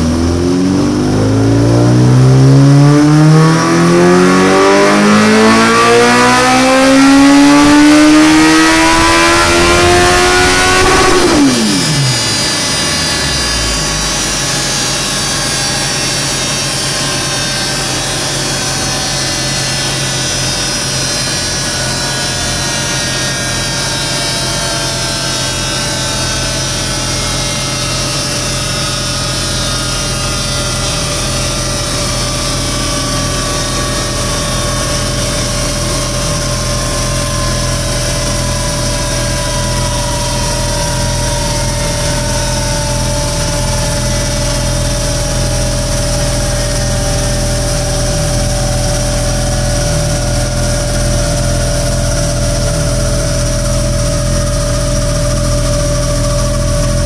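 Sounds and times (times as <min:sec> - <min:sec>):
whine falling in pitch: 0:00.0 - 0:57.0
motorcycle engine idling: 0:28.4 - 0:57.0.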